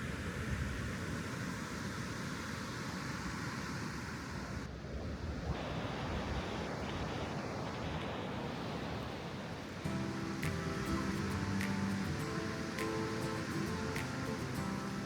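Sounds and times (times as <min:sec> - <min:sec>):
river water rushing over rocks: 0:05.6 - 0:15.0.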